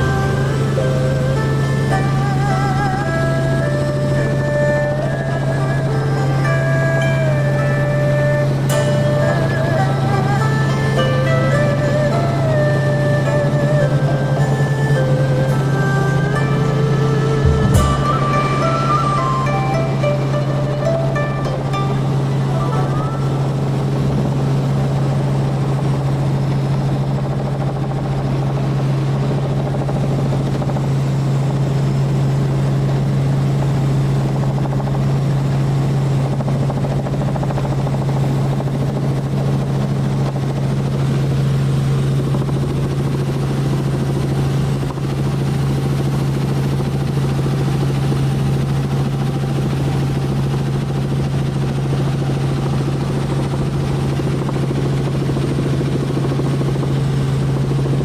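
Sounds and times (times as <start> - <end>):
rushing noise: 0.0 - 24.6
helicopter rotor and turbine drone: 0.0 - 58.0.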